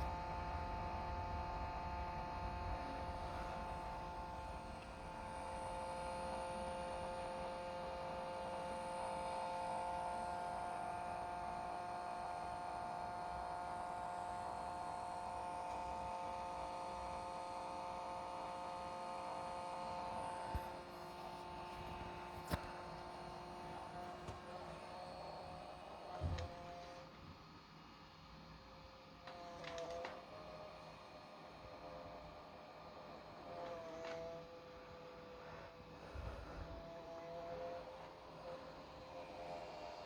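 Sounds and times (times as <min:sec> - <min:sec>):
radio controller electronic hum: 0:00.0 - 0:26.4
small click: 0:29.6 - 0:30.2.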